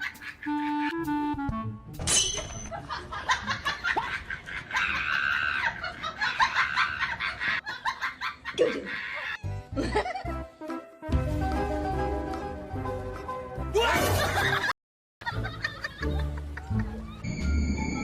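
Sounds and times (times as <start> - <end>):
person laughing: 2.7 - 10.4, 15.3 - 17.2.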